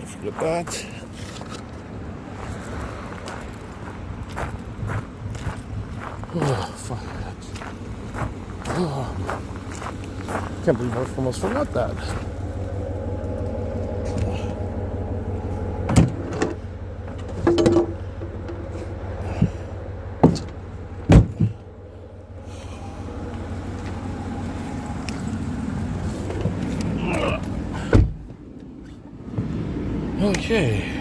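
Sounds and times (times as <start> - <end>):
vehicle engine idling: 0.0 - 31.0
sharp knocks and clunks: 15.8 - 18.6, 20.2 - 21.7.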